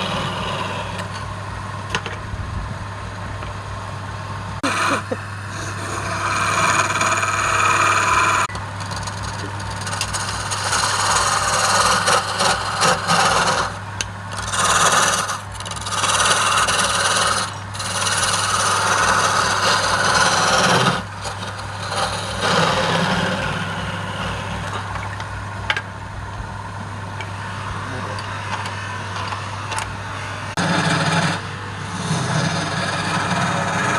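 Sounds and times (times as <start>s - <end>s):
wood lathe motor hum: 0.0s - 1.3s, 4.6s - 25.2s, 27.7s - 33.9s
tool scraping spinning wood: 0.0s - 2.0s, 4.6s - 25.4s, 27.2s - 33.9s.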